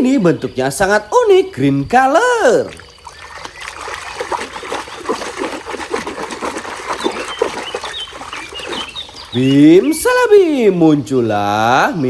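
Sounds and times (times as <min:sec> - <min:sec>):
water splashing and sloshing: 0:02.4 - 0:10.3.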